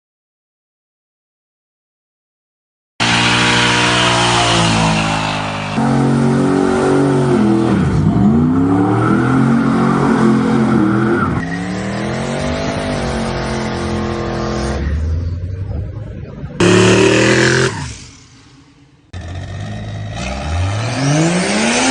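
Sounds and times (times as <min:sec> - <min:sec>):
car engine revving and accelerating: 0:03.0 - 0:15.3, 0:16.6 - 0:18.1, 0:19.2 - 0:21.9.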